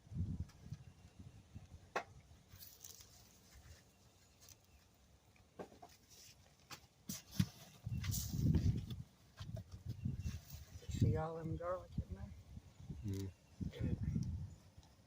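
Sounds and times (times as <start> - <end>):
hands crumbling potting soil: 1.9 - 10.7.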